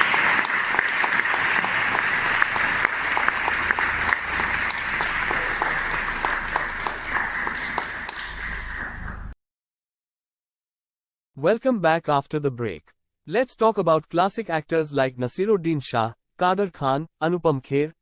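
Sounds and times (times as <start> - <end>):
audience applause: 0.0 - 9.3.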